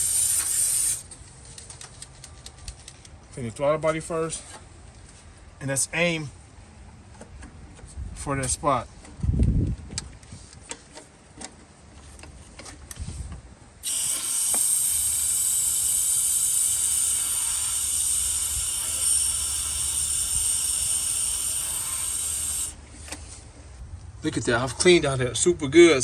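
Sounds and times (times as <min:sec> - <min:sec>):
aerosol can spraying hiss: 0:00.0 - 0:01.0, 0:13.8 - 0:22.8.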